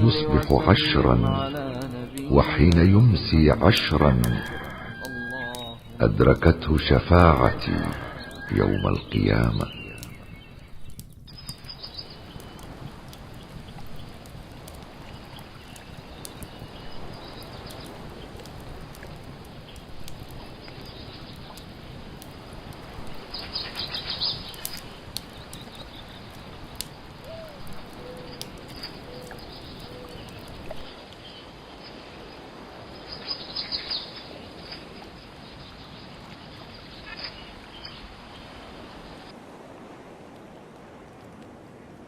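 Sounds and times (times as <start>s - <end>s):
wood fire crackling and popping: 0.0s - 31.7s.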